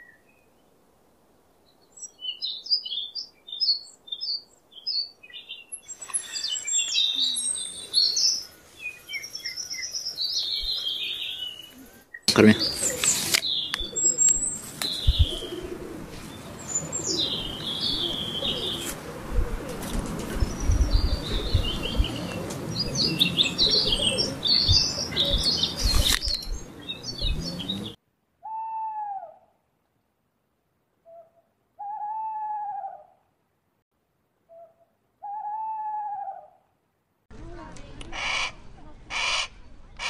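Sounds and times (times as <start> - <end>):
small birds chirping: 1.6 - 28.0
owl hooting: 31.1 - 33.2, 34.5 - 36.6.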